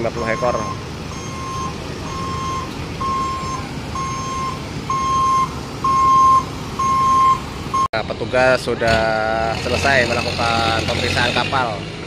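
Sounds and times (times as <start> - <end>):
truck reversing alarm beeping: 0.0 - 8.0
truck engine rumble: 0.0 - 12.0.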